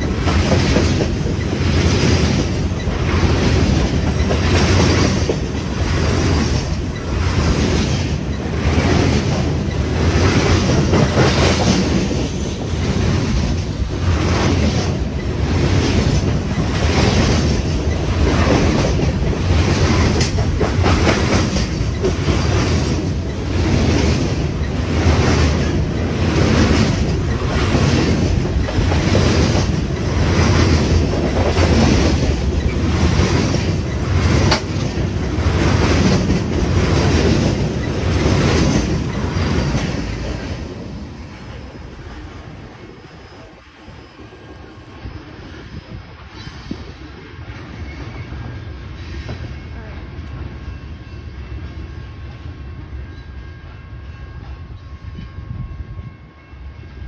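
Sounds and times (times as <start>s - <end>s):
clickety-clack of wheels: 0.0s - 40.8s
freight train wheels rumbling: 0.0s - 57.0s.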